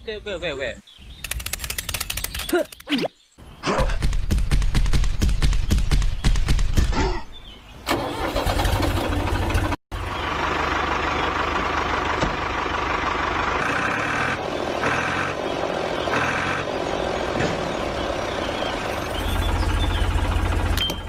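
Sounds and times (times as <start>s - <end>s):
tractor engine running: 7.9s - 21.0s.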